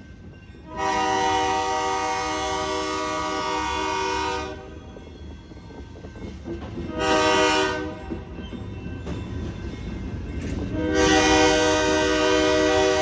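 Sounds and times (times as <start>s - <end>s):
train rumble and rail clatter: 0.0s - 13.0s
locomotive horn blasts: 0.7s - 4.7s, 6.9s - 8.0s, 10.7s - 13.0s.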